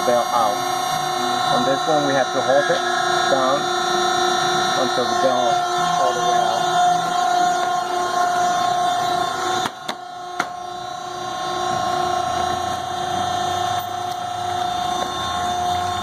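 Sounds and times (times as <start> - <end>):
hydraulic power unit whining: 0.0 - 16.0.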